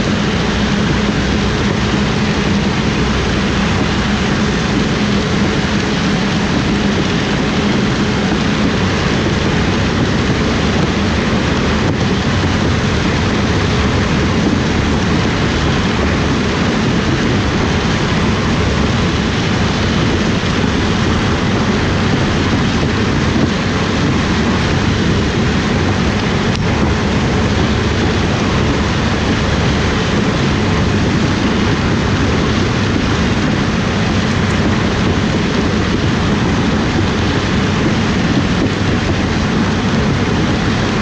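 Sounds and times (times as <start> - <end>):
combine harvester drone: 0.0 - 41.0.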